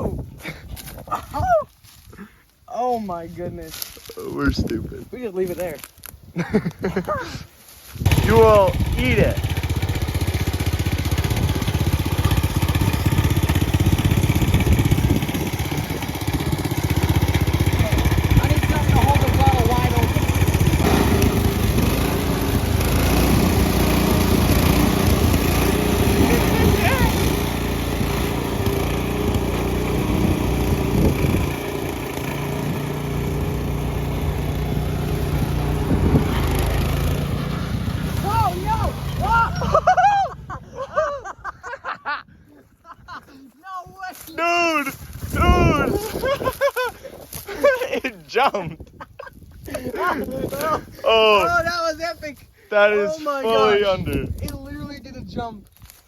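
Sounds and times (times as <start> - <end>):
riding tractor engine running: 8.0 - 40.5.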